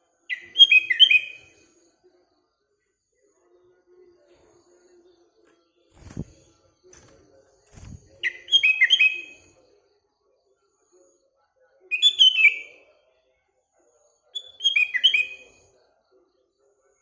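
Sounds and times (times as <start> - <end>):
bird singing whistled notes: 0.3 - 1.5, 7.8 - 9.4, 11.9 - 12.8, 14.4 - 15.6.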